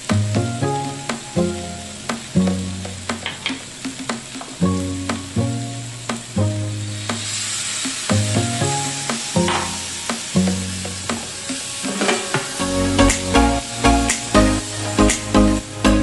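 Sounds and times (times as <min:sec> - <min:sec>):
background music: 0:00.0 - 0:16.0
squash sizzling in a frying pan: 0:00.9 - 0:12.6
spatula scraping pan: 0:11.2 - 0:12.6.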